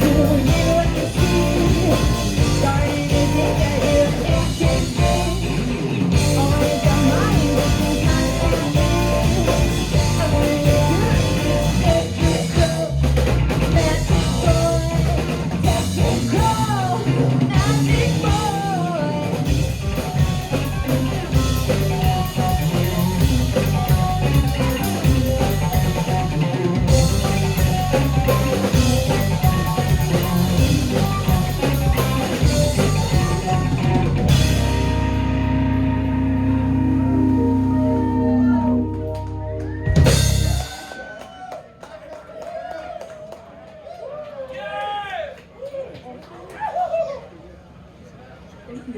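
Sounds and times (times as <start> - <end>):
person singing: 0.0 - 19.7, 27.0 - 40.8
guitar: 0.0 - 41.0
drum kit: 0.0 - 41.2.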